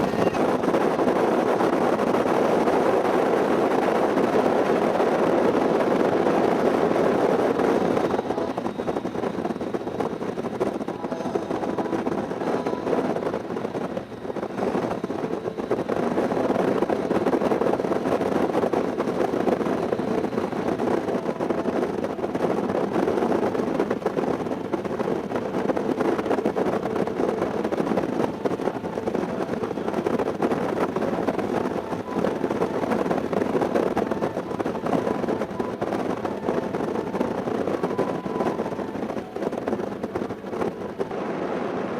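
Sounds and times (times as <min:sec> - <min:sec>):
wind noise on microphone: 0:00.0 - 0:41.9.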